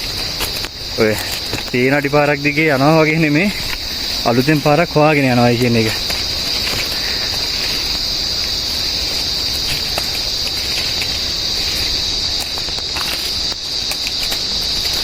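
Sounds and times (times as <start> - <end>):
crackles and snaps: 0.0 - 5.0, 9.1 - 15.0
cicadas droning: 0.0 - 15.0.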